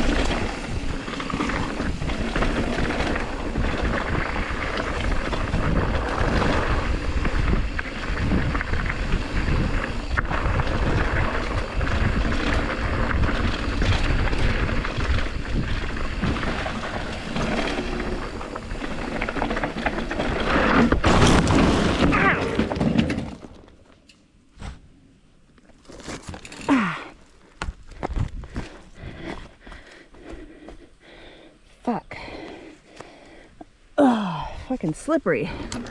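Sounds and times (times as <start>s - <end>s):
wind rushing over microphone: 0.0s - 22.0s
tyres rolling on dirt: 0.0s - 31.5s
bike clattering and knocking: 11.8s - 24.1s.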